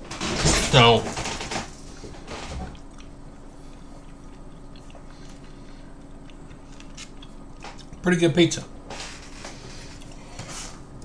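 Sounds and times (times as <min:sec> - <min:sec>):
steady low hum: 0:00.0 - 0:11.0
wet chewing: 0:01.9 - 0:08.1.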